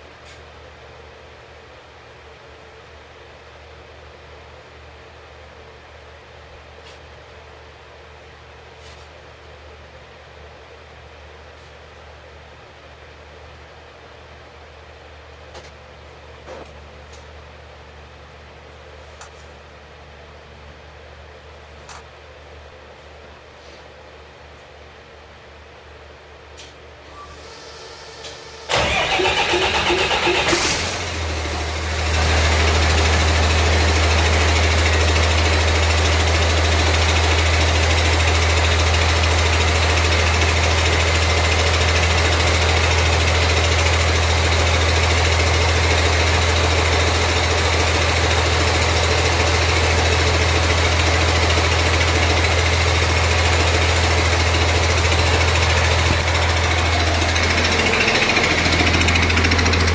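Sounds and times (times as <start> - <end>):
air compressor running: 27.3 - 59.9
diesel engine starting and idling: 27.3 - 59.9.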